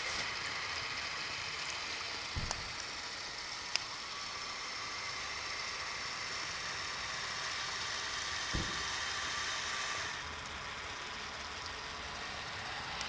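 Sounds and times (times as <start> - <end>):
noisy hiss: 0.0 - 10.2
small electric motor whining: 0.0 - 13.0
low thump: 2.4 - 2.8, 8.5 - 9.1.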